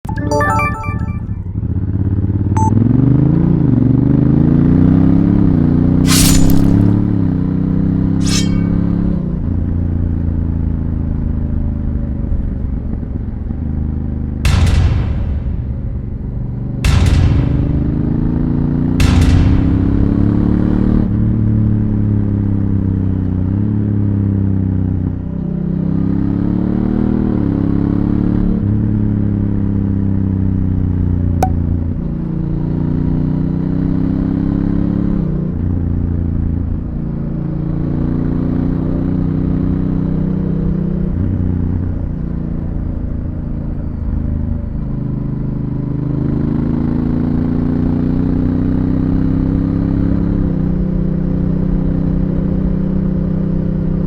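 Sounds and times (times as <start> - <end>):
sharp click: 6.1 - 6.8, 8.2 - 8.8.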